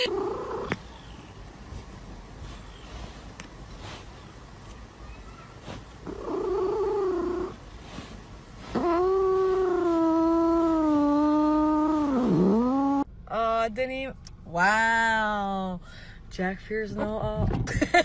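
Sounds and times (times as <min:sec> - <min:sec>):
cat yowling: 0:08.7 - 0:13.0.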